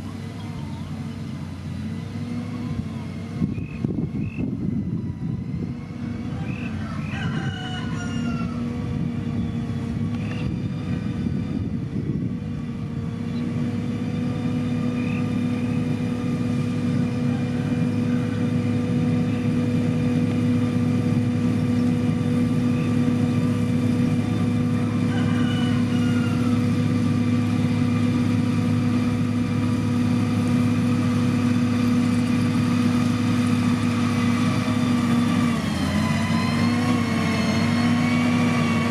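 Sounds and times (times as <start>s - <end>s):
diesel engine of construction machine: 0.0s - 38.9s
rooster crowing: 6.0s - 8.9s, 17.1s - 18.7s, 24.8s - 27.0s.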